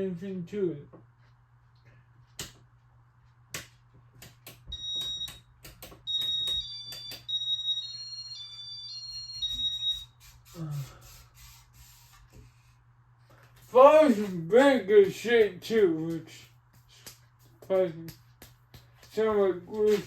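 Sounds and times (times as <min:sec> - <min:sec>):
high electronic beeps tune: 0:06.1 - 0:10.1.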